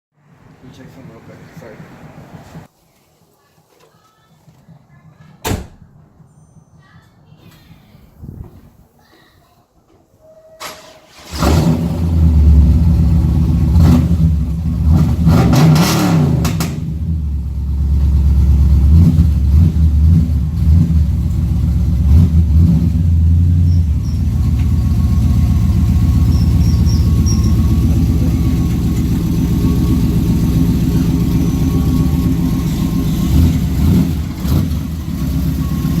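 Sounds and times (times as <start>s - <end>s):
car engine starting and idling: 10.6s - 36.0s.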